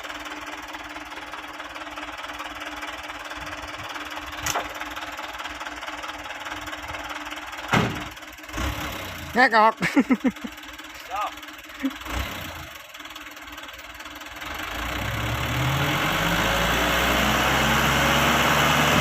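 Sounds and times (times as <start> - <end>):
diesel engine clattering: 0.0 - 19.0
heavy thud: 7.7 - 8.1.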